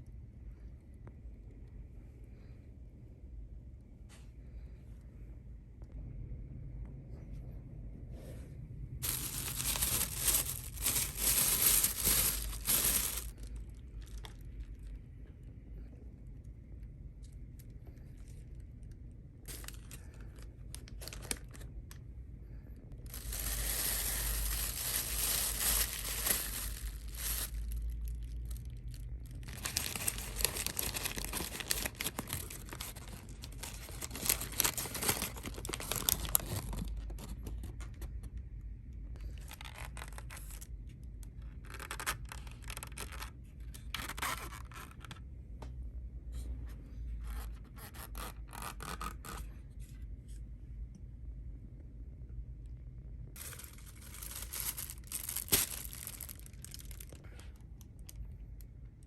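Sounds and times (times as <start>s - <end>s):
packaging tearing and crinkling: 9.0s - 14.5s, 19.5s - 21.8s, 23.1s - 37.8s, 39.3s - 40.7s, 41.6s - 45.2s, 53.4s - 57.2s.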